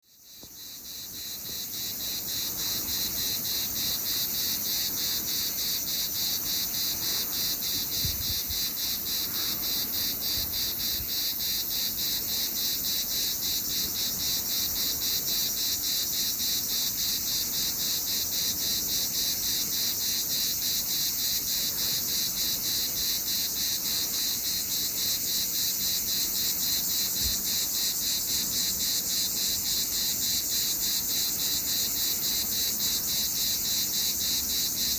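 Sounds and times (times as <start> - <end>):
cicada buzzing: 0.2 - 34.9.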